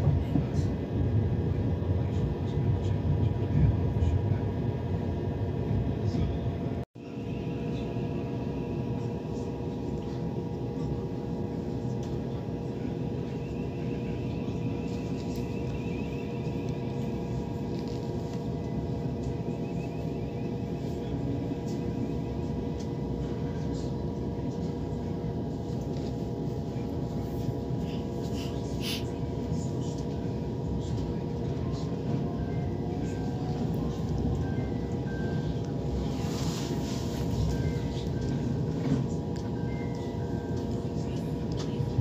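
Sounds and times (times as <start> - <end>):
constant hum: 0.0 - 42.0.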